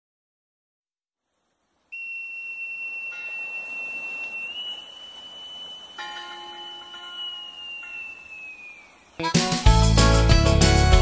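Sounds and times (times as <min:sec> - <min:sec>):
faint ringing tones: 0:01.9 - 0:09.2
steady high-pitched tone: 0:02.0 - 0:09.2.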